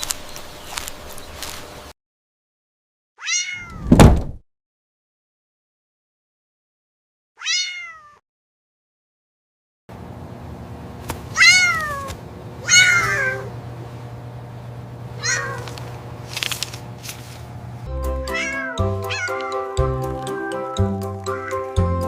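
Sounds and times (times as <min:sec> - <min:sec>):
cat meowing: 0:03.2 - 0:03.9, 0:07.4 - 0:08.2, 0:11.4 - 0:13.5, 0:15.2 - 0:15.7, 0:18.2 - 0:19.7, 0:20.4 - 0:21.8
background music with steady beat: 0:17.9 - 0:22.0.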